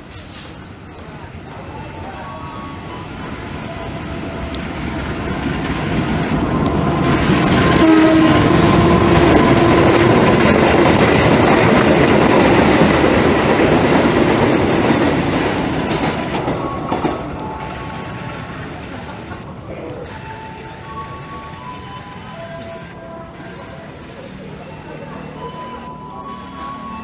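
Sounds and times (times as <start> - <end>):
locomotive engine and wheels: 0.0 - 27.0
horn-like tone: 7.7 - 9.2.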